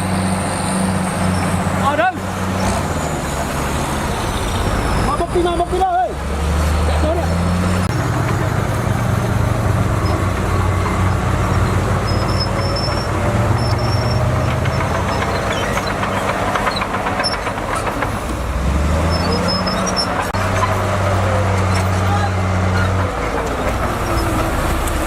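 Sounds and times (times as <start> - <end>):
bulldozer diesel engine running: 0.0 - 25.0
metallic clanks: 9.9 - 21.0.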